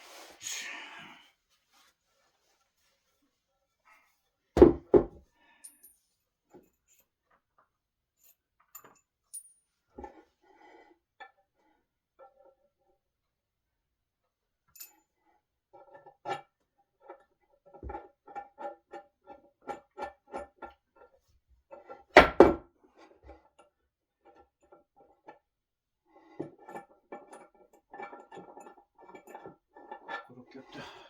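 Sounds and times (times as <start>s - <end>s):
loud knock on wood: 4.6s - 5.2s.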